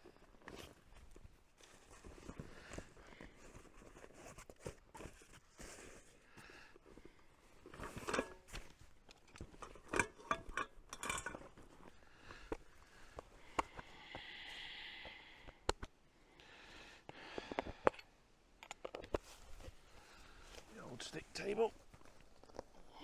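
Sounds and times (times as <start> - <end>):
items clicking and knocking: 7.6 - 13.9, 17.2 - 19.8.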